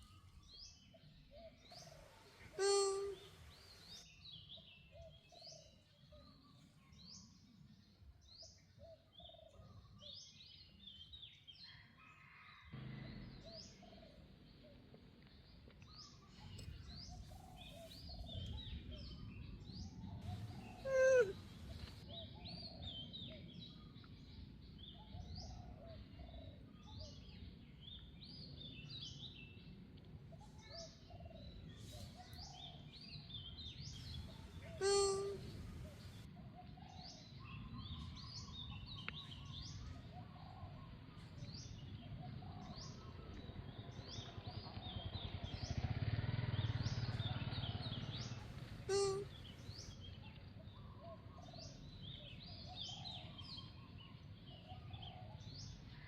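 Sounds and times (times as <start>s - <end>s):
small birds chirping: 0.0s - 56.0s
bird call sliding down in pitch: 20.8s - 21.4s.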